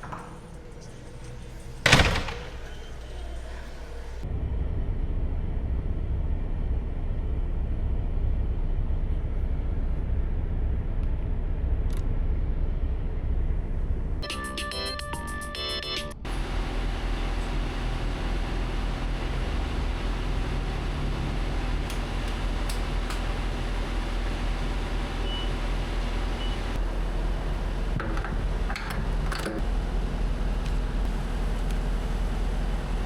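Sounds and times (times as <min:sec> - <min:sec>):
truck engine rumble: 0:00.0 - 0:04.2, 0:16.3 - 0:33.0.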